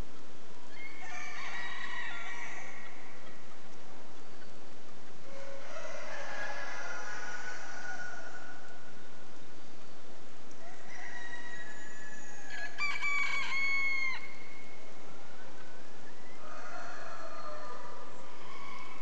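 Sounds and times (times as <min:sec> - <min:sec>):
faint bird calls: 0:00.6 - 0:19.0
rooster crowing: 0:00.7 - 0:03.4, 0:05.2 - 0:09.0, 0:10.6 - 0:15.0, 0:16.2 - 0:19.0.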